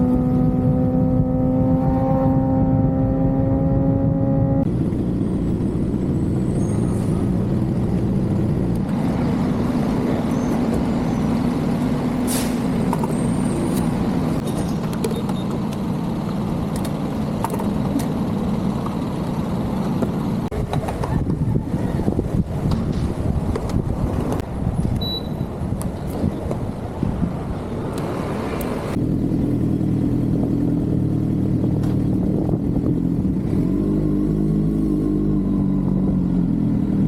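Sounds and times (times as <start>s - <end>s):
wind noise: 0.0s - 11.6s, 20.5s - 29.0s, 32.0s - 33.6s
motorcycle engine cruising: 0.0s - 12.2s, 25.6s - 37.0s
road noise: 0.0s - 37.0s.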